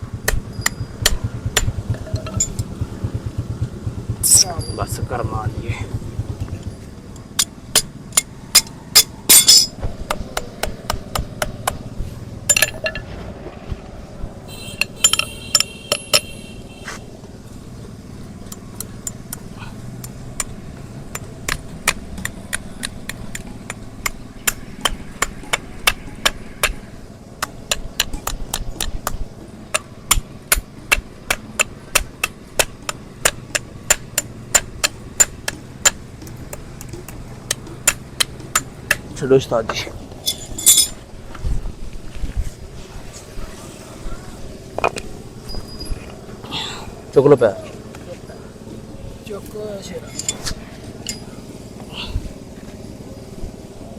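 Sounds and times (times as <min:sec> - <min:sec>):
hammer tapping on hoof: 0:21.1 - 0:40.3.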